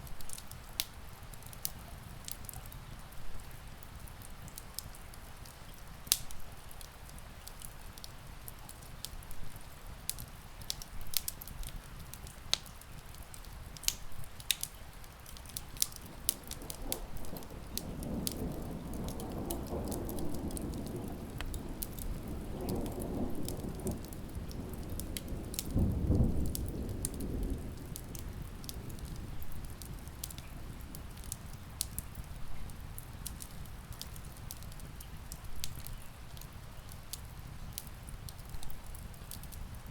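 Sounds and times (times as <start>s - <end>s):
steady rain: 0.0s - 39.9s
wood fire crackling and popping: 0.0s - 39.9s
distant thunder rumbling: 16.0s - 31.2s.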